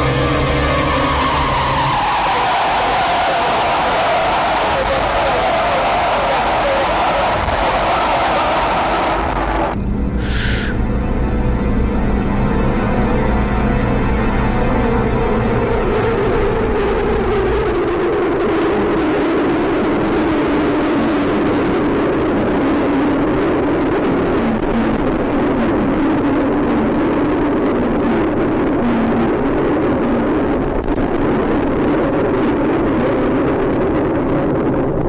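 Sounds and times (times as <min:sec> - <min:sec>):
vehicle driving at highway speed: 0:00.0 - 0:12.0, 0:15.1 - 0:35.0.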